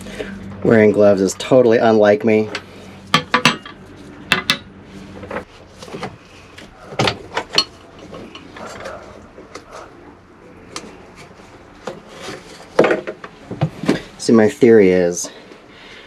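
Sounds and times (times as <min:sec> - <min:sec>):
hard parts clicking and knocking: 0:02.5 - 0:04.7.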